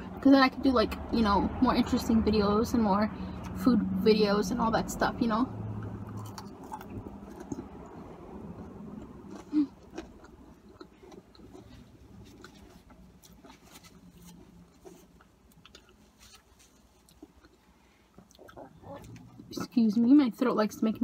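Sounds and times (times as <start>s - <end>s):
wet chewing and smacks: 5.8s - 19.5s.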